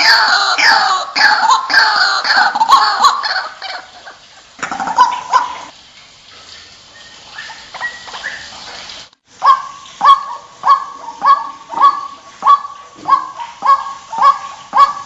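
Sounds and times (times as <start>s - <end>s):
bird calling harsh repeated notes: 0.0s - 5.7s, 9.4s - 15.0s.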